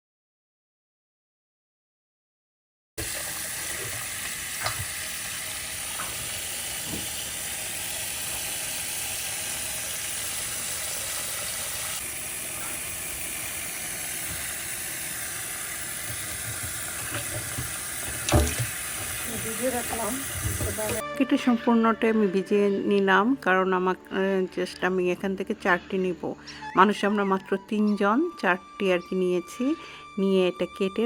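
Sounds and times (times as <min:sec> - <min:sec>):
tap running into a bowl: 0:03.0 - 0:05.0, 0:15.9 - 0:21.0.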